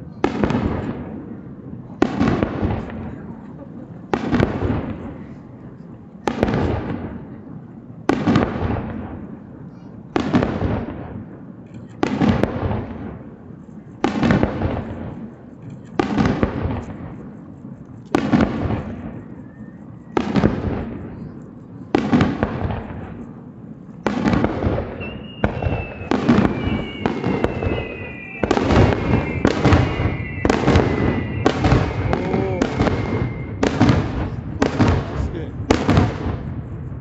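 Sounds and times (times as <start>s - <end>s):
fireworks bursting with booms: 0.0s - 37.0s
long whistling tones: 18.9s - 20.4s, 24.9s - 34.8s.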